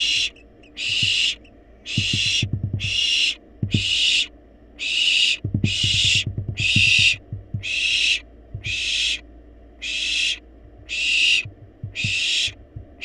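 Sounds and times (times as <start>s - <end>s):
owl chicks hissing: 0.0s - 13.0s
soft low knocks: 0.6s - 4.0s, 5.4s - 8.8s, 10.6s - 13.0s.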